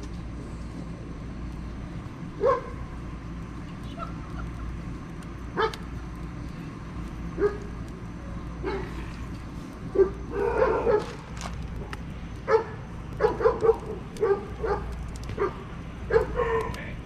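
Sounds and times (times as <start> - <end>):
campfire popping: 0.0 - 17.0
dog barking and yipping: 2.4 - 2.8, 10.0 - 11.2, 12.5 - 16.7.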